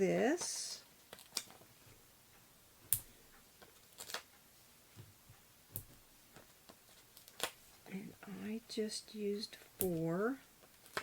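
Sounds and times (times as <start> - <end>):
foam adhesive clicks and taps: 5.0 - 7.7.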